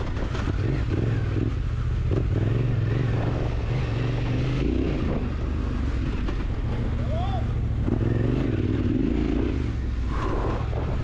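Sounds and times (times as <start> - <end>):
wind rushing: 8.5 - 11.0.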